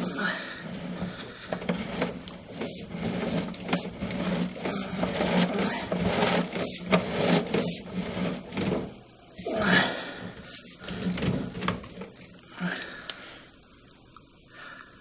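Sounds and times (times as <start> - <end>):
cable knocking and scraping in pipe: 0.0 - 9.0, 9.6 - 12.3
low electrical hum: 0.0 - 15.0.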